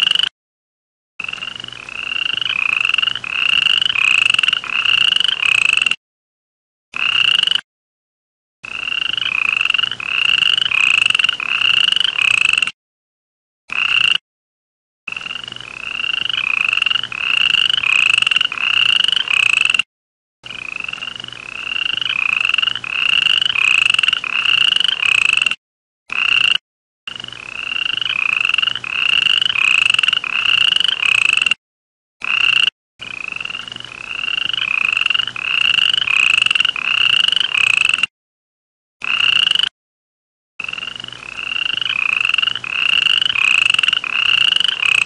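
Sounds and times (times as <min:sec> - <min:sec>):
frog calling: 0:00.0 - 0:00.3, 0:01.2 - 0:06.0, 0:07.0 - 0:07.6, 0:08.7 - 0:12.7, 0:13.7 - 0:14.2, 0:15.1 - 0:19.8, 0:20.4 - 0:25.5, 0:26.1 - 0:26.6, 0:27.6 - 0:31.5, 0:32.2 - 0:38.0, 0:39.0 - 0:39.7, 0:40.6 - 0:45.0.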